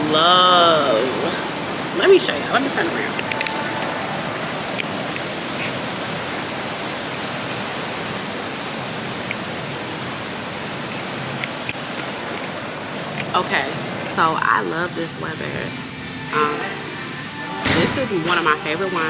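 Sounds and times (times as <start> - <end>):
heavy rain pouring: 0.0 - 19.0
sharp drip ticks: 1.7 - 14.2.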